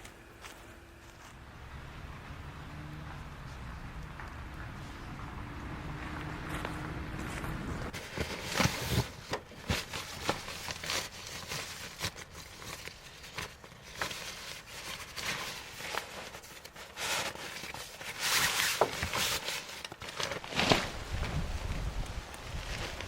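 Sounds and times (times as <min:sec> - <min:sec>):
rustling: 0:06.5 - 0:23.0.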